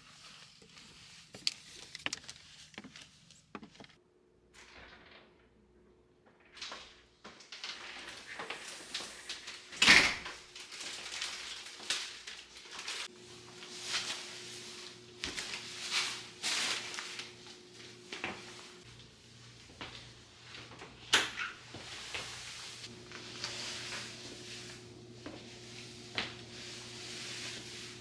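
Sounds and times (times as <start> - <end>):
soft scrapes and slides: 0.0 - 3.9, 21.8 - 28.0.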